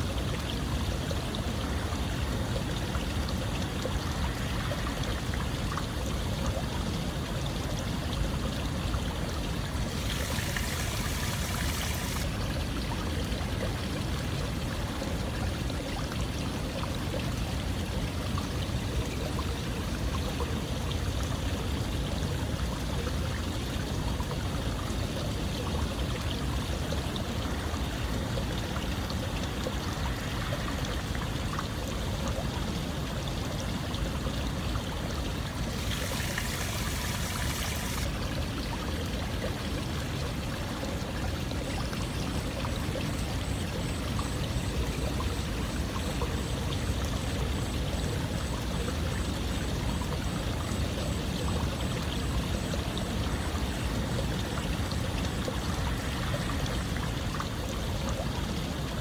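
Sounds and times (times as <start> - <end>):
running water: 0.0 - 59.0
hissy water splash: 9.7 - 12.4, 35.4 - 38.2.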